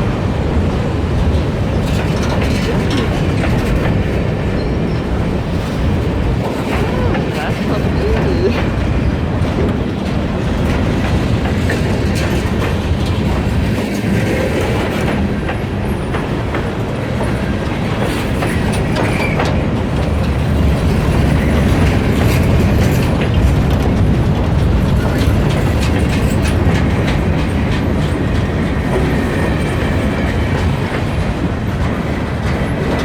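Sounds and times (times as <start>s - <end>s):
wheels clicking over rail joints: 8.6s - 33.0s.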